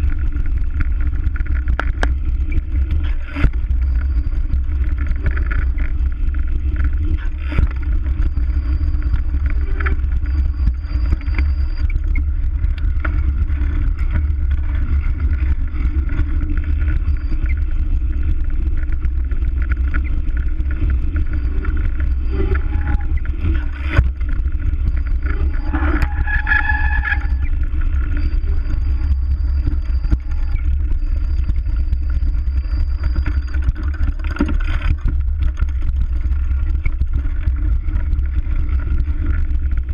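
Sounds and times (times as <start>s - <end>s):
bike rolling noise: 0.0s - 39.9s
short squeal: 8.2s - 12.2s, 21.4s - 24.0s, 25.0s - 34.6s.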